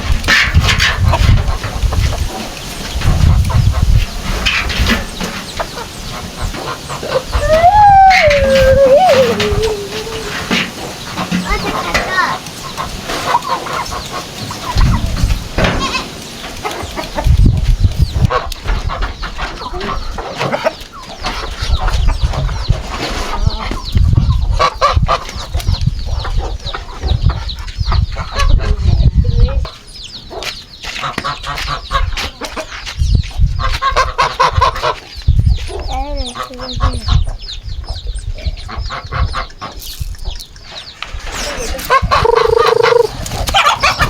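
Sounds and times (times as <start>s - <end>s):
chickens clucking: 0.0s - 44.0s.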